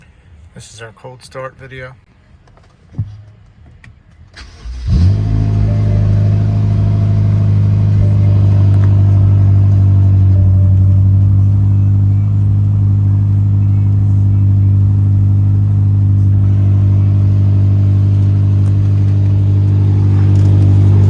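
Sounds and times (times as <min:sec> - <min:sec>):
ignition click: 0:04.2 - 0:06.2
car engine starting and idling: 0:04.2 - 0:21.0.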